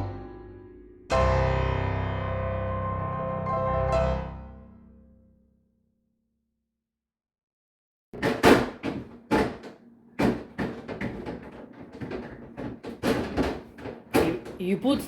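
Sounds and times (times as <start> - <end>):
fridge shelves clattering: 8.2 - 15.0.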